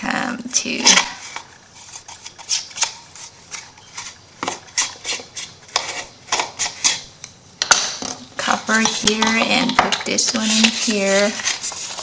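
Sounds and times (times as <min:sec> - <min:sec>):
paper rustling: 0:08.8 - 0:12.0.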